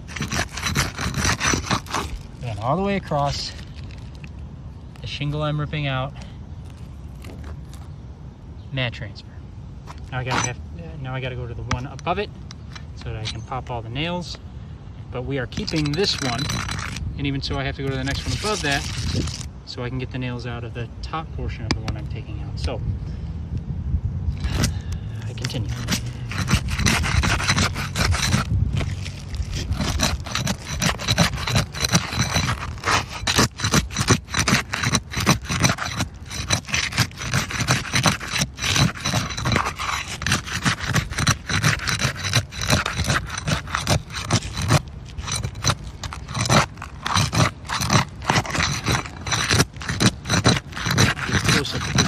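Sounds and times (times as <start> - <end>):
metal tool scraping shingles: 0.0 - 4.3, 9.9 - 14.4, 15.2 - 19.5, 24.4 - 52.0.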